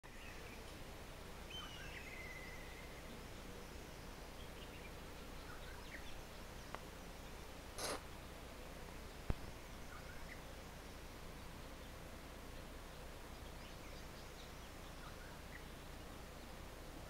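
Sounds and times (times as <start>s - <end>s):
background hiss: 0.0s - 17.0s
distant birds calling: 1.4s - 17.0s
brief rush of noise: 7.8s - 8.0s.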